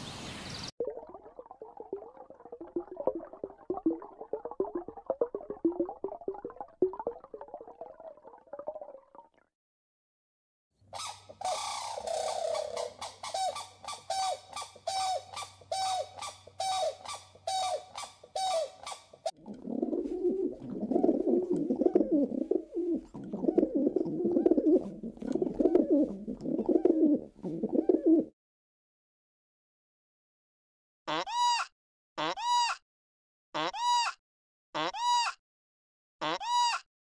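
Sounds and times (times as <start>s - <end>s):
pigeon cooing: 11.4s - 13.1s, 19.5s - 28.3s.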